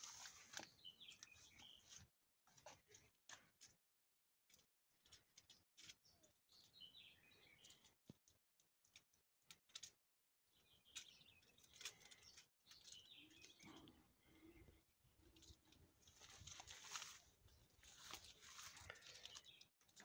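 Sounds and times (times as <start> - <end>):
faint bird chirps: 0.1 - 2.0, 10.5 - 19.7.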